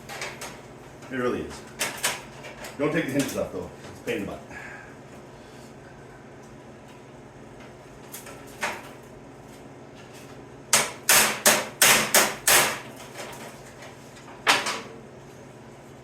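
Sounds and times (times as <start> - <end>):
hammer striking sheet metal: 10.8 - 12.8.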